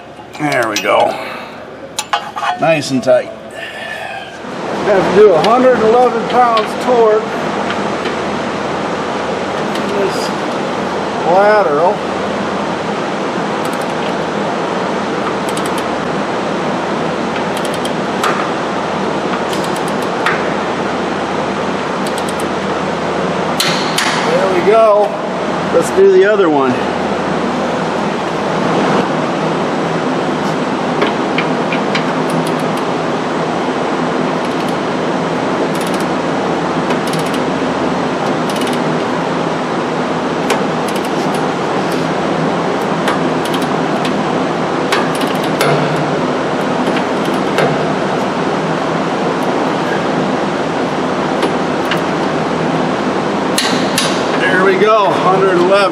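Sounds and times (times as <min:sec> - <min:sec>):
loud steady background noise: 0:00.0 - 0:55.9
steady rushing background noise: 0:00.0 - 0:55.9
ratchet wrench clicking: 0:17.6 - 0:18.0, 0:19.5 - 0:20.1, 0:34.4 - 0:34.8, 0:35.7 - 0:36.1, 0:37.0 - 0:37.4, 0:38.4 - 0:38.8, 0:40.9 - 0:41.4, 0:43.4 - 0:44.2, 0:45.1 - 0:45.6.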